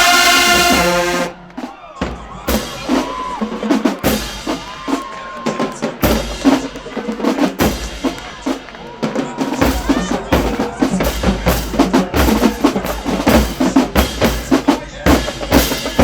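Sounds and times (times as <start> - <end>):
brass chord: 0.0 - 1.4
snare and bass drum cadence: 0.0 - 16.0.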